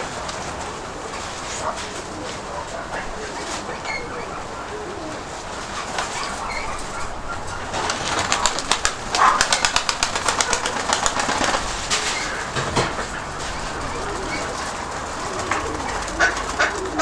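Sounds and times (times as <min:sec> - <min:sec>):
pigeon wings flapping: 0:04.8 - 0:17.0.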